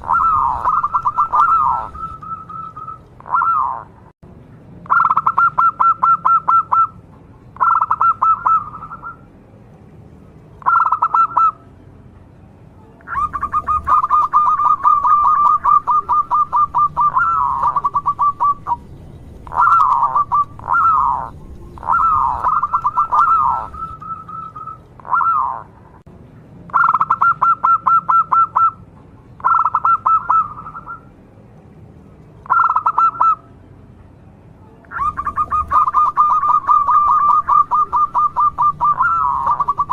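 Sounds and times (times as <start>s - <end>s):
dove trilled cooing: 0.0s - 3.9s, 4.9s - 7.0s, 7.6s - 9.2s, 10.6s - 11.6s, 13.1s - 25.7s, 26.7s - 28.8s, 29.4s - 31.0s, 32.4s - 33.4s, 34.9s - 39.9s.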